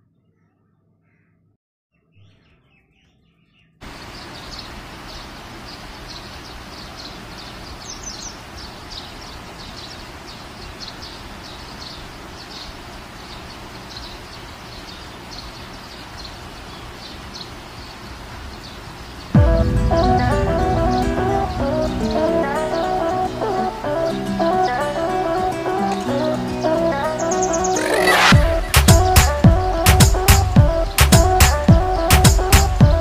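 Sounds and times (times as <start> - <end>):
outdoor hiss: 3.8 - 32.8
high bird chirps: 25.8 - 29.4.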